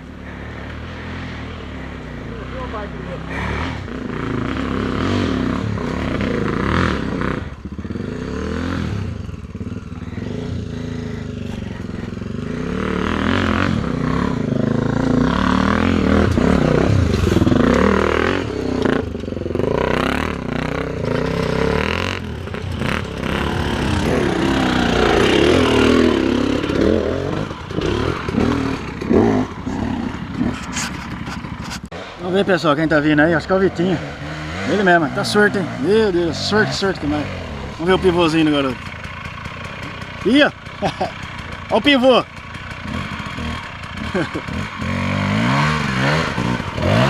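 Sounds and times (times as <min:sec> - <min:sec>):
motorcycle engine revving: 0:00.0 - 0:47.0
clattering and scraping: 0:21.0 - 0:32.0.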